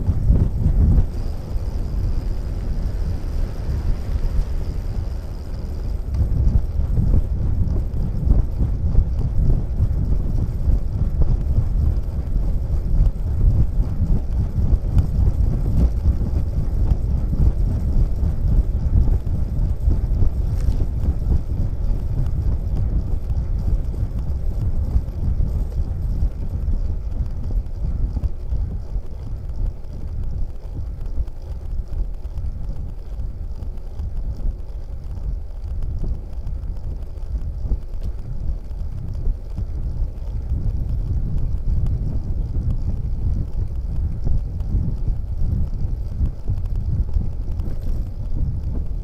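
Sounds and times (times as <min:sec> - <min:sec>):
wind buffeting microphone: 0:00.0 - 0:49.0.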